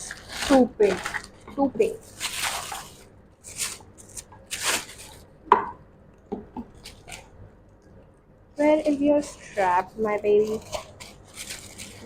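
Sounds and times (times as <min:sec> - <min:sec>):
plastic packaging rustling: 0:00.0 - 0:05.4, 0:06.7 - 0:07.4, 0:08.6 - 0:12.0.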